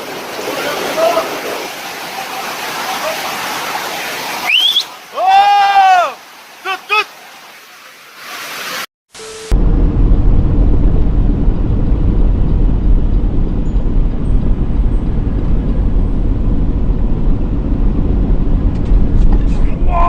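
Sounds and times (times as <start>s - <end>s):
vehicle low rumble: 9.5s - 20.0s.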